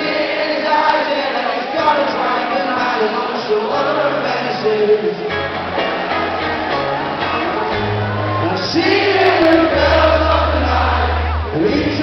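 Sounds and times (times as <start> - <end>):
person singing lead vocal: 0.0 - 5.4, 8.4 - 12.0
crowd voices: 0.0 - 12.0
rock band playing live: 4.7 - 12.0.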